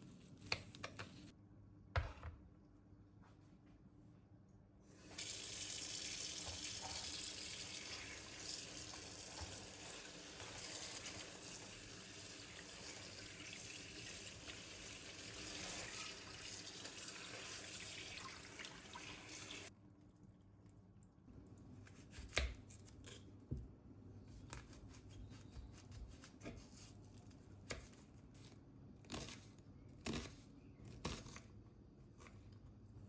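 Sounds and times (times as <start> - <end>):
tap running into a sink: 6.2 - 7.3.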